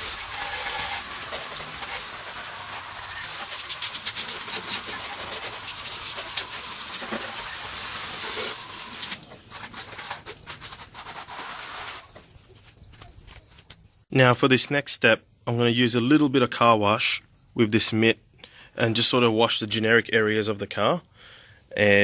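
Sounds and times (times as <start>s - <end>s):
hose water spraying: 0.0s - 12.7s.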